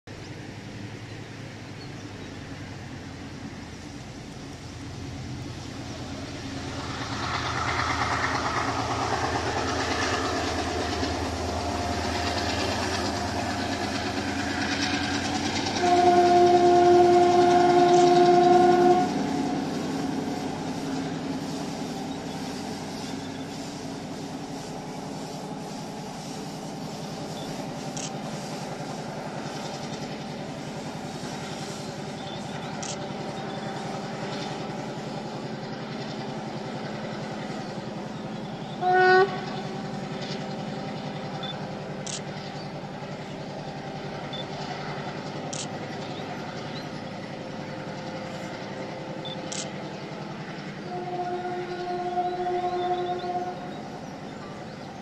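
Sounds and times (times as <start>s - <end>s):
train engine and wheels rumbling: 0.1s - 55.0s
train horn blast: 15.7s - 19.7s, 38.7s - 39.9s, 50.8s - 53.8s.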